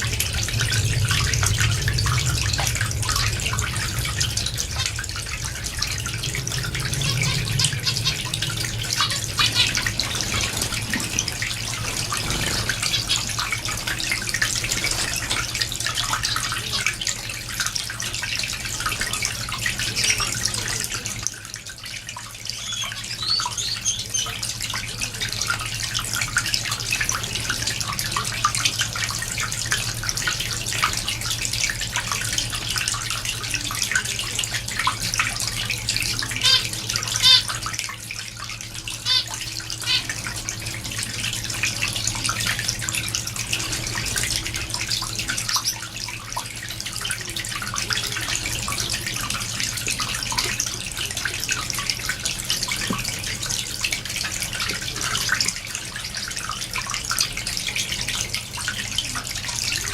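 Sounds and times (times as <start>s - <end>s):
steady low hum: 0.0s - 23.6s
finches chirping: 36.4s - 37.5s
loud nasal bird calls: 36.4s - 37.6s, 39.0s - 40.1s.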